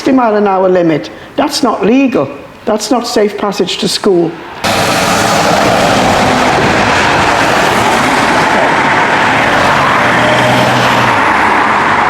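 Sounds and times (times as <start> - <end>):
traffic passing at speed: 4.2 - 12.0
engine note: 4.6 - 12.0.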